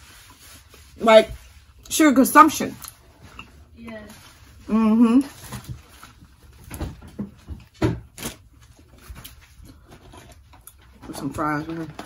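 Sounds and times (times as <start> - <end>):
person chewing food: 8.5 - 11.0.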